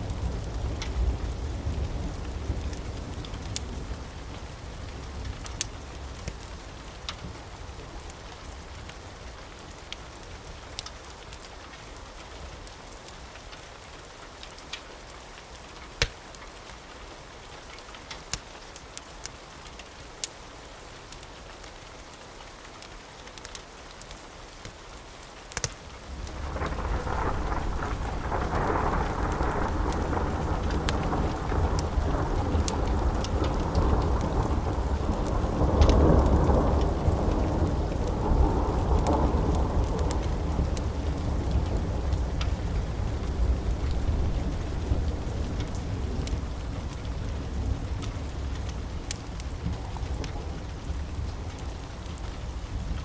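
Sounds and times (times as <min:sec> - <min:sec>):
steady rain: 0:00.0 - 0:53.0
thunder rumbling: 0:26.0 - 0:52.9.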